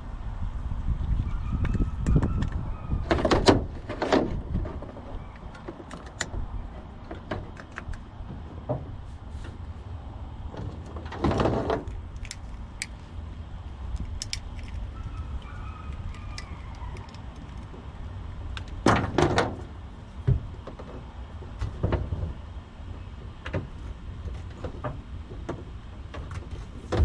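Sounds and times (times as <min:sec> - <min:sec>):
steady low rumble: 0:00.0 - 0:27.0
scraping rustles: 0:03.0 - 0:12.8.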